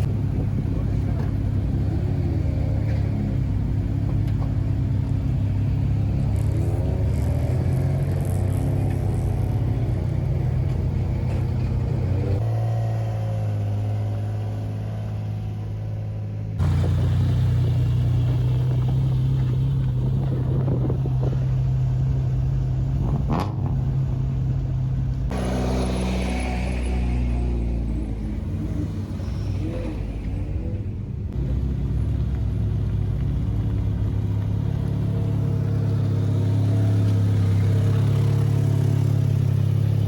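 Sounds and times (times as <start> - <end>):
car engine at high revs: 0.0 - 24.4, 25.1 - 30.7.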